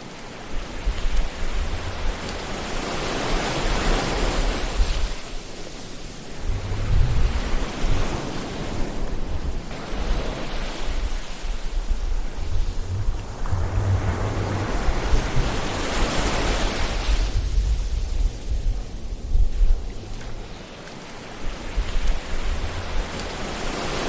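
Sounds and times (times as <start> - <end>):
ocean waves washing: 0.0 - 24.0
low rumble: 6.3 - 9.7, 11.5 - 20.6.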